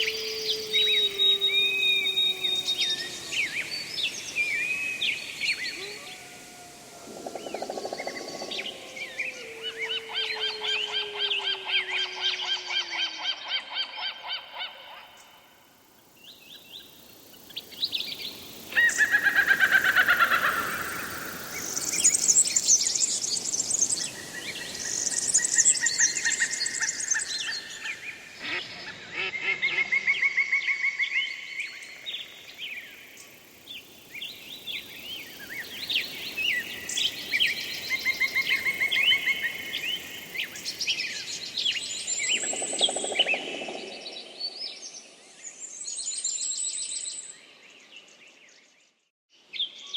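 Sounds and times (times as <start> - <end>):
songbirds singing: 0.0 - 6.2.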